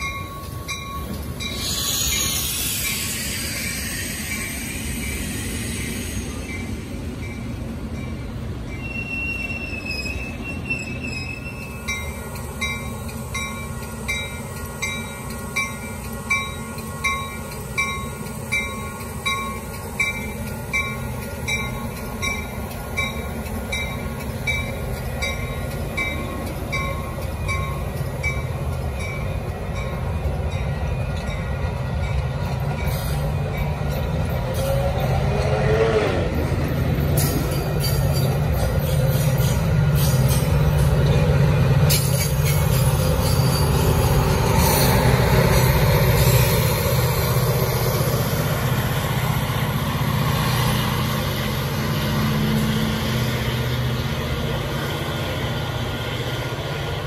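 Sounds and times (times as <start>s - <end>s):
railroad crossing bell ringing: 0.0s - 57.0s
train rumbling past: 0.0s - 57.0s
thin wheel squeal: 8.8s - 11.8s.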